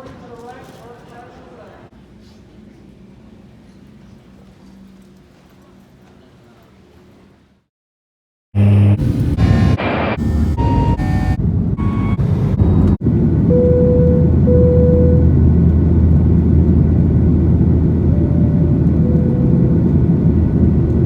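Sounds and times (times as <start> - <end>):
moving vehicle rumble from inside: 10.4 - 21.0.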